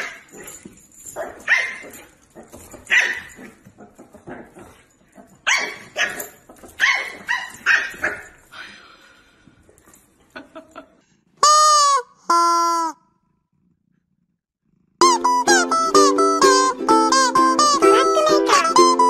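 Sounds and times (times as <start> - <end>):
puppy barking: 1.2 - 2.0, 2.8 - 3.6, 5.4 - 8.4.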